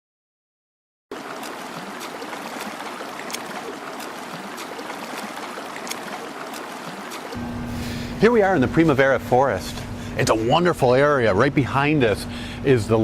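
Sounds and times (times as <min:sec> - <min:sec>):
small sharp splashes: 0:01.1 - 0:07.4
stream water rushing: 0:01.1 - 0:09.2.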